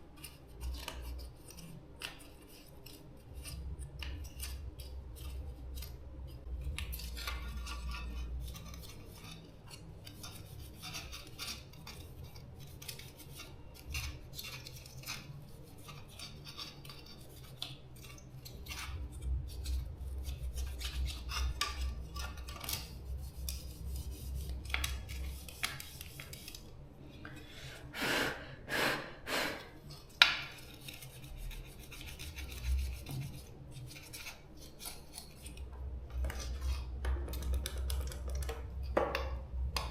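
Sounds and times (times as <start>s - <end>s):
small tools clicking and scraping: 0.0s - 27.5s.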